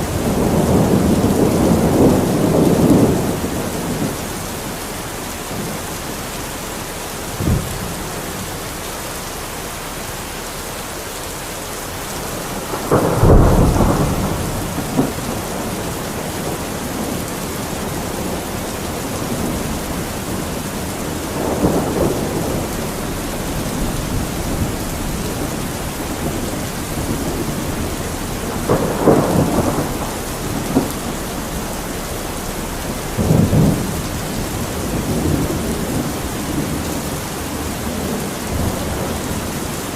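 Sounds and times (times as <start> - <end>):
thunder rumbling: 0.0 - 10.4, 11.8 - 39.9
heavy rain: 0.0 - 39.9
sharp thunder crack: 12.4 - 37.1.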